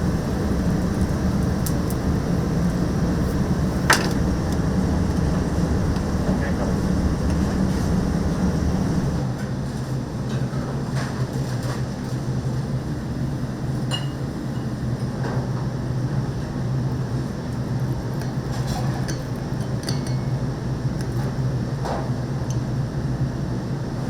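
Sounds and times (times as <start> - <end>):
low kitchen hum: 0.0 - 9.2.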